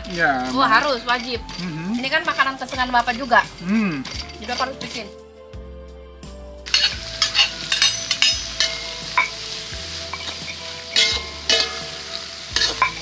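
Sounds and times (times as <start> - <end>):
fish sizzling in hot oil: 6.7 - 13.0
spatula scraping a pan: 6.7 - 13.0.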